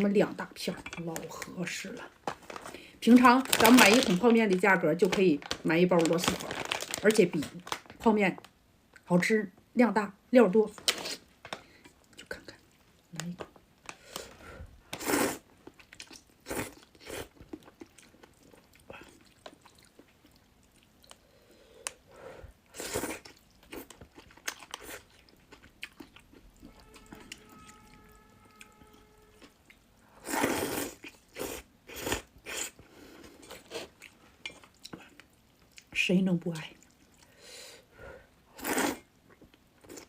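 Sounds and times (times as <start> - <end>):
chewing and biting with crunch: 22.8 - 27.5.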